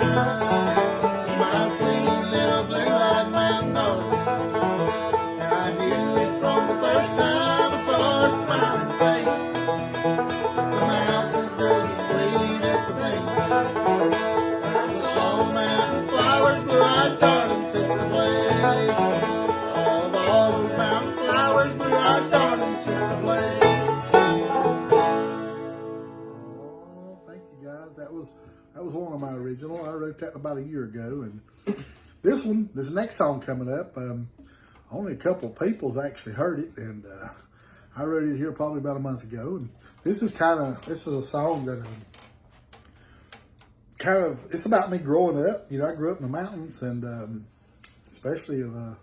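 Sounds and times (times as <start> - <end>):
banjo and guitar picking: 0.0 - 30.3.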